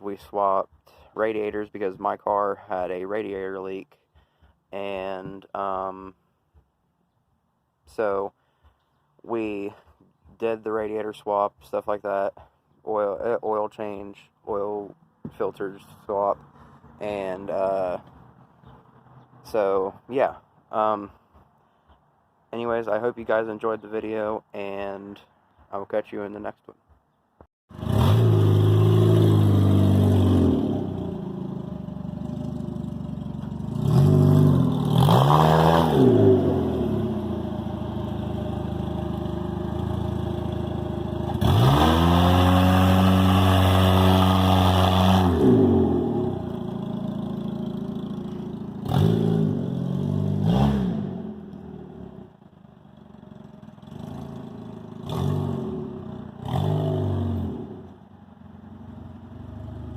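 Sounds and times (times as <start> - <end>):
race car engine revving: 27.7 - 32.6, 33.4 - 52.2, 53.9 - 57.9.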